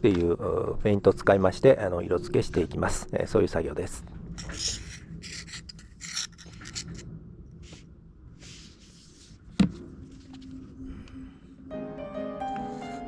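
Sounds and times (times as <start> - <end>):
rubbing and scraping on cardboard: 8.4 - 9.4.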